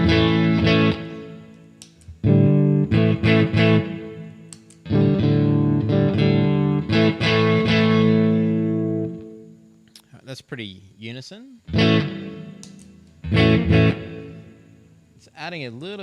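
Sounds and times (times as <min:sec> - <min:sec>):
electric guitar strummed chords: 0:00.0 - 0:09.6, 0:11.7 - 0:14.7.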